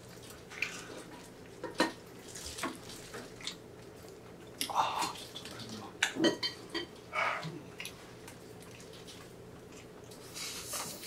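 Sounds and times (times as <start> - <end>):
wet chewing: 7.7 - 11.0.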